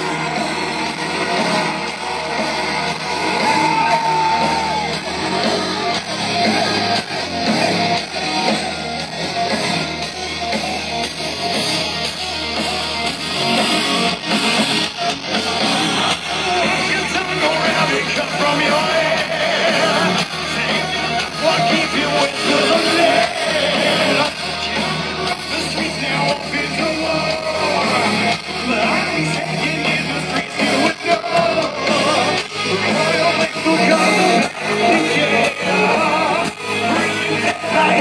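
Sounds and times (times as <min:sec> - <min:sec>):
electric guitars: 0:00.0 - 0:38.0
person singing: 0:15.5 - 0:38.0.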